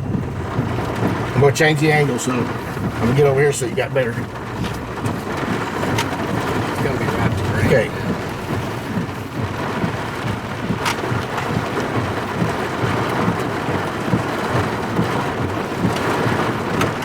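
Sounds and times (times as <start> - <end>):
low thunder rumble: 0.0 - 13.4
heavy rain on a vehicle: 0.0 - 17.0.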